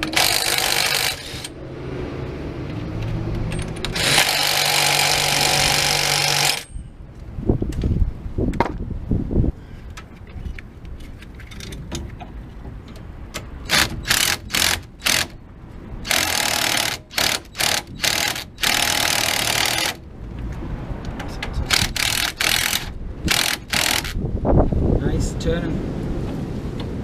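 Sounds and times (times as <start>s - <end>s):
power tool bursts on a nut: 0.0s - 1.5s, 3.6s - 6.7s, 13.7s - 15.4s, 16.0s - 20.0s, 21.7s - 24.2s.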